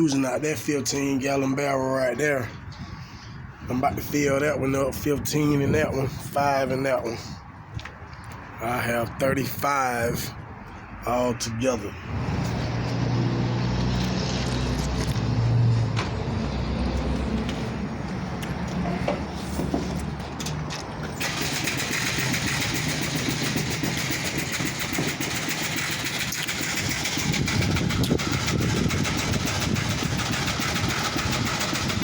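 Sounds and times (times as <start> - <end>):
engine running: 12.0 - 32.0.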